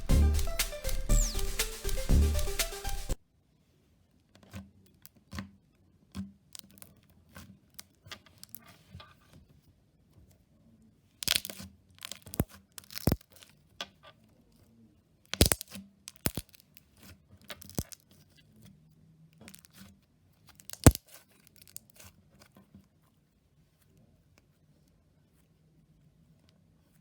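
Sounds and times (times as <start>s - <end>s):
slime crackling and popping: 15.4s - 16.5s, 20.7s - 21.0s.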